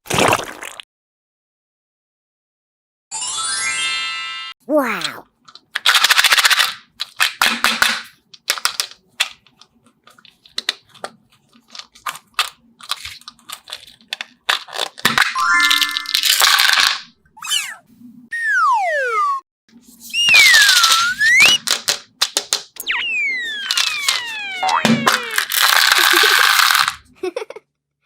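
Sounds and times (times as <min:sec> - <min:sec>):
toys clicking and crackling: 0:05.4 - 0:07.5, 0:08.1 - 0:17.0, 0:20.1 - 0:27.1
rising cartoon tones: 0:17.4 - 0:19.4, 0:20.0 - 0:21.6, 0:22.8 - 0:26.4
falling whistle-like glides: 0:20.1 - 0:21.6, 0:22.8 - 0:24.8.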